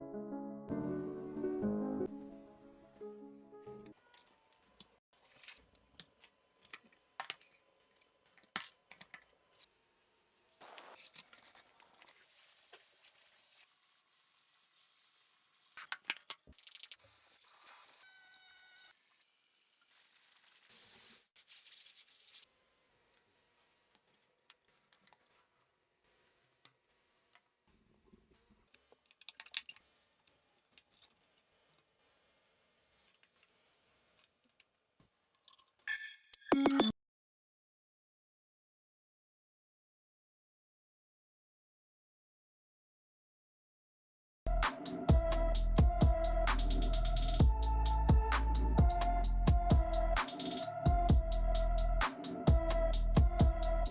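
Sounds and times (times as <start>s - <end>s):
piano music: 0.0s - 3.9s
hiss: 17.0s - 21.4s.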